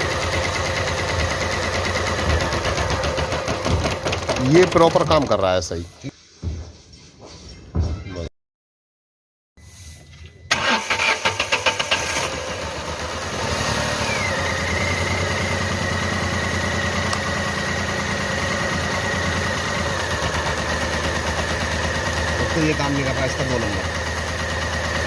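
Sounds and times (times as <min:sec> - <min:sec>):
car engine starting and idling: 0:10.5 - 0:25.0.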